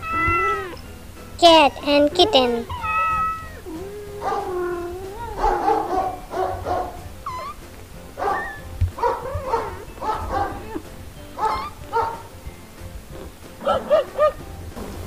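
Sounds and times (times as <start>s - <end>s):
small pet animal crying: 0.0s - 6.3s, 7.0s - 12.0s
background music: 0.0s - 15.0s.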